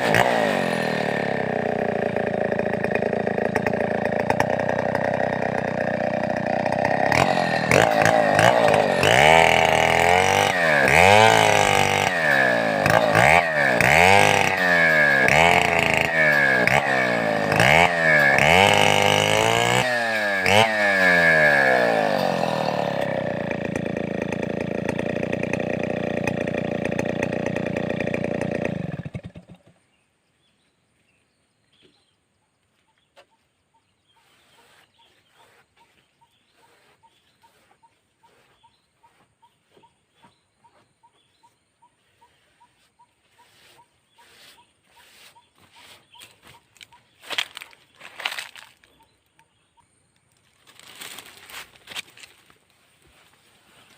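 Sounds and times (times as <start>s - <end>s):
chainsaw revving: 0.0s - 29.8s, 43.3s - 49.1s, 50.4s - 53.9s.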